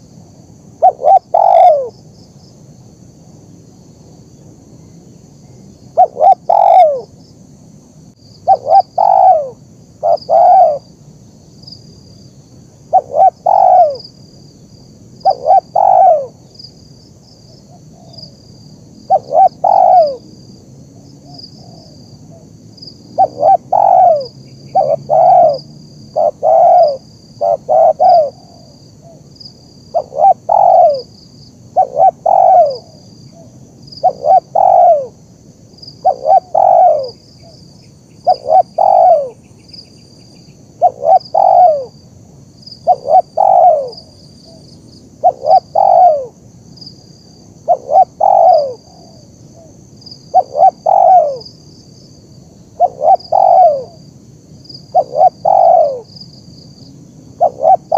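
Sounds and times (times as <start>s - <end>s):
dove cooing: 0.8s - 2.0s, 6.0s - 7.1s, 8.4s - 10.9s, 12.8s - 14.1s, 15.2s - 16.4s, 19.1s - 20.3s, 21.2s - 22.5s, 23.2s - 29.3s, 29.9s - 31.1s, 31.7s - 35.2s, 36.0s - 37.6s, 38.2s - 39.4s, 40.8s - 42.0s, 42.8s - 46.4s, 47.6s - 51.5s, 52.8s - 54.0s, 54.9s - 56.1s, 57.4s - 57.9s
faint high chirping: 4.3s - 7.1s.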